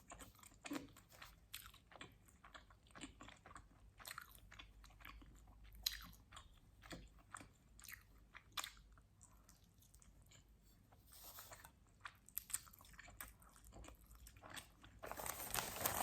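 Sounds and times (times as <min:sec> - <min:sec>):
pizza crust crunching: 0:14.4 - 0:16.0.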